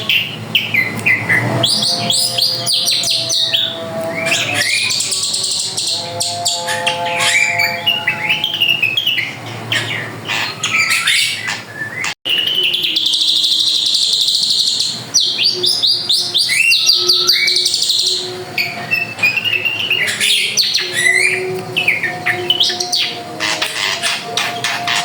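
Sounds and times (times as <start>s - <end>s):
bird singing whistles and chirps: 0.0s - 25.0s.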